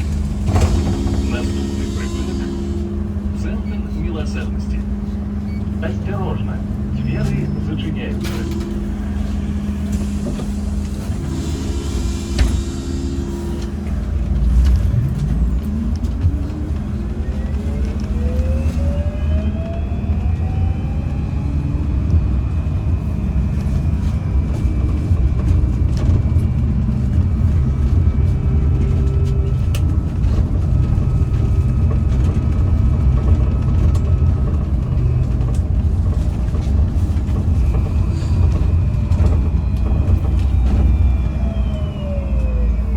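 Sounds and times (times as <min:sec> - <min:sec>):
bus rumbling: 0:00.0 - 0:42.9
air brake hiss and knock: 0:09.9 - 0:13.7.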